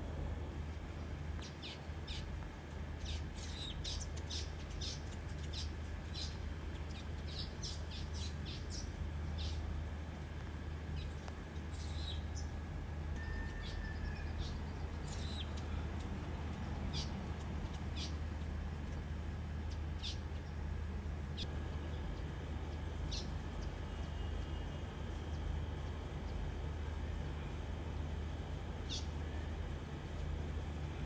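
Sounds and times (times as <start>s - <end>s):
birds chirping: 3.0s - 9.7s, 13.4s - 18.4s, 19.6s - 20.7s, 21.3s - 25.4s, 28.8s - 29.2s.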